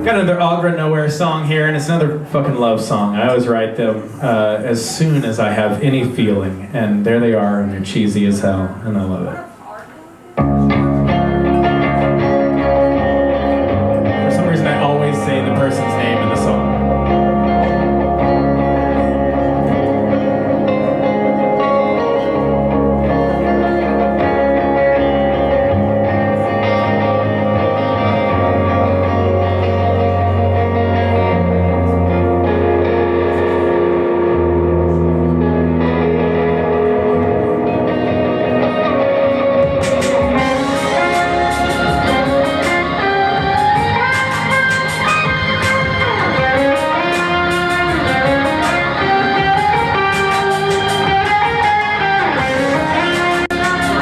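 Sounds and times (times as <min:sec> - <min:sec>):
guitar: 0:00.0 - 0:54.0
live band playing instrumental: 0:10.3 - 0:54.0
rhythmic strums: 0:10.3 - 0:54.0
low bass notes: 0:10.4 - 0:54.0.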